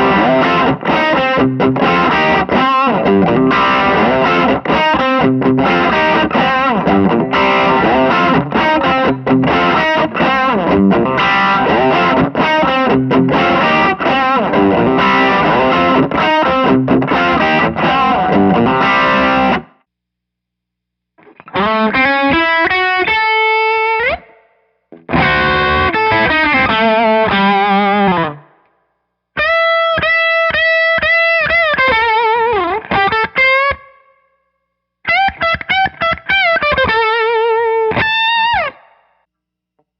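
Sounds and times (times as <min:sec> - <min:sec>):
distorted electric guitar riffing: 0:00.0 - 0:19.8, 0:21.2 - 0:28.6
electric guitar lead phrases: 0:00.0 - 0:19.8, 0:21.2 - 0:28.6, 0:29.4 - 0:34.2, 0:35.1 - 0:39.0.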